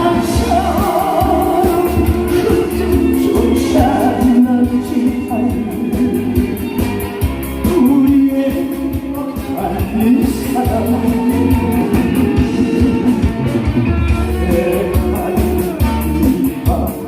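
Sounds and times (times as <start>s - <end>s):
person singing: 0.0s - 6.9s, 7.6s - 17.0s
bass: 0.0s - 17.0s
guitar: 0.0s - 17.0s
steady drum beat: 0.0s - 17.0s.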